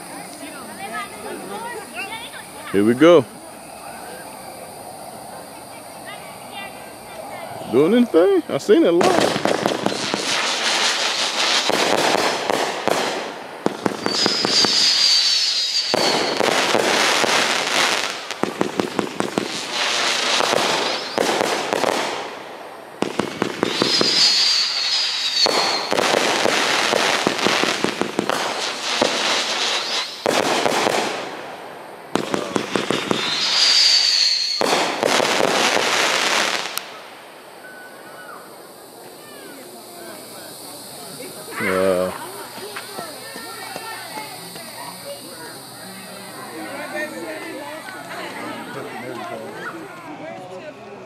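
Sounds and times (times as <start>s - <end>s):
fireworks crackling pops: 0.0s - 50.0s
high falling firework whistle: 9.0s - 22.2s, 23.0s - 31.4s, 32.1s - 36.9s, 37.5s - 41.7s.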